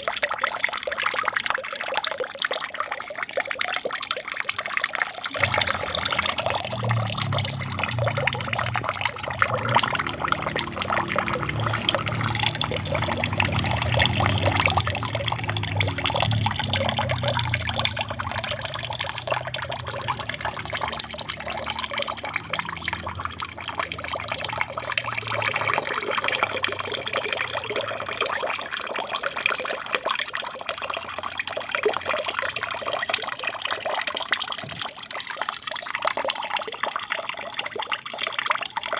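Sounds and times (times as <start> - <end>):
water falling and splashing: 5.0 - 32.8
low rumble: 5.4 - 26.2.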